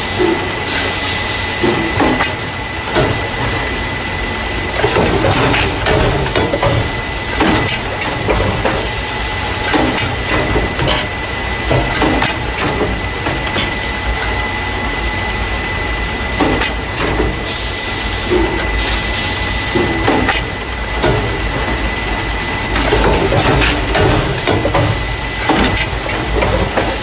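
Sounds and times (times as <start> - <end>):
machine humming with whine: 0.0 - 27.0
machine clicks and knocks: 1.6 - 3.8, 4.8 - 14.4, 16.4 - 17.5, 19.6 - 27.0.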